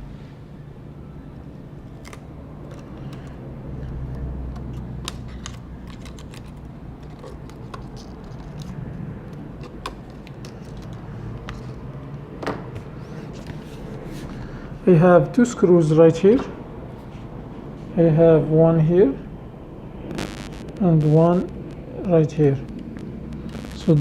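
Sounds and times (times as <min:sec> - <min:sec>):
low hum: 0:19.3 - 0:24.0.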